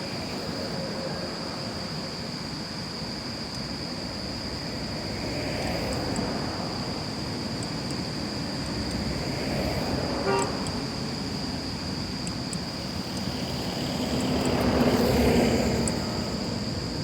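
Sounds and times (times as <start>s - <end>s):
road traffic noise: 4.6s - 17.0s
vehicle horn toot: 10.2s - 10.6s.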